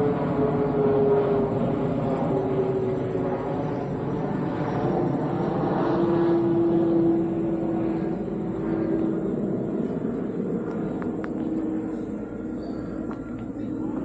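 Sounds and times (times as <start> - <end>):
distant engine drone: 0.0 - 14.0.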